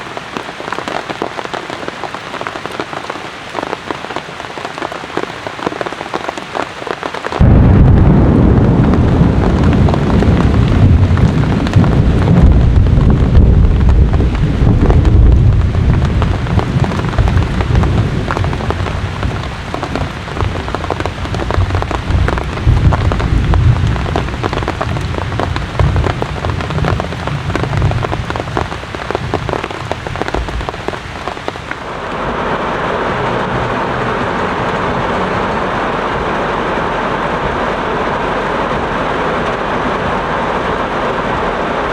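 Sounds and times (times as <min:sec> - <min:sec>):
steady rain: 0:00.0 - 0:41.9
thunder crashing and rumbling: 0:07.4 - 0:32.0.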